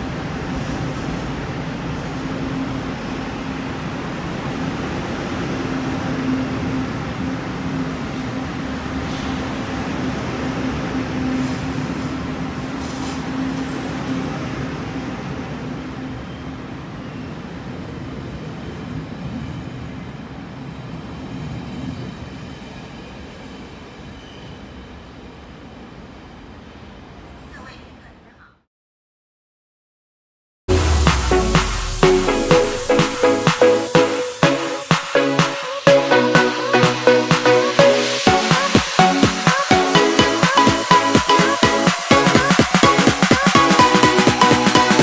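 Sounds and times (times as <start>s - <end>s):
train rumbling past platform: 0.0s - 27.5s.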